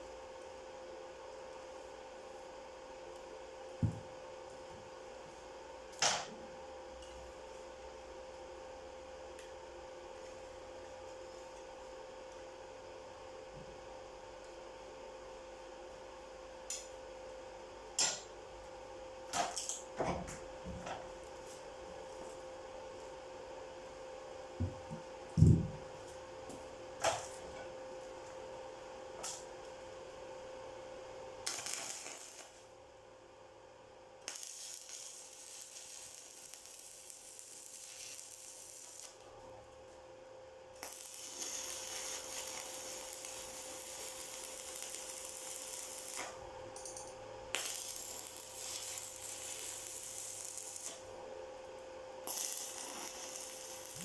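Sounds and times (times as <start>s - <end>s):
welding arc crackling: 31.4s - 32.6s, 34.3s - 39.3s, 40.8s - 51.1s, 52.2s - 54.0s.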